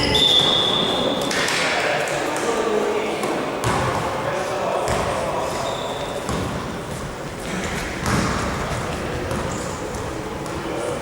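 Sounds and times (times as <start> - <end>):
sneakers squeaking: 0.0 - 1.5, 4.9 - 11.0.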